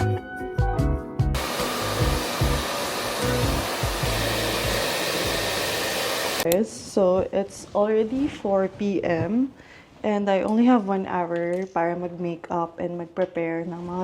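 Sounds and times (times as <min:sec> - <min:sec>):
background music bass notes: 0:00.0 - 0:04.8
hair dryer blowing: 0:01.4 - 0:06.5.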